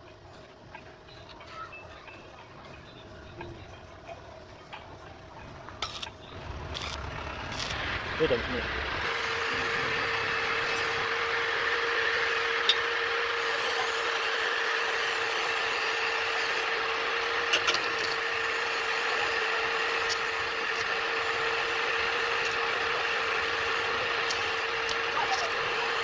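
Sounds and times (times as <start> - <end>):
machine hum: 0.0 - 26.0
machine hiss: 6.4 - 26.0.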